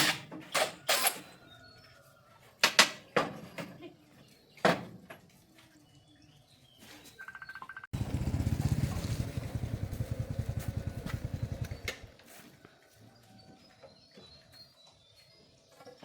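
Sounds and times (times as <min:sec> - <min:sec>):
small engine running: 0:08.0 - 0:12.1.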